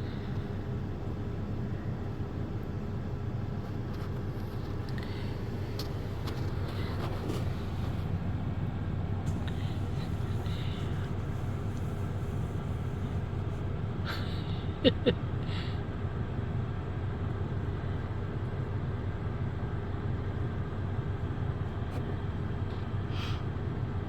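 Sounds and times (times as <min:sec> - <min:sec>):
car cabin hum: 0:02.6 - 0:13.7.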